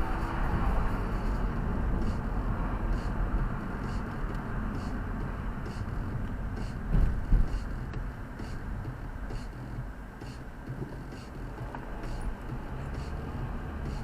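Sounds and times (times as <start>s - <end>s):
car engine and road rumble: 0.0s - 14.0s
low bumps: 0.0s - 14.0s.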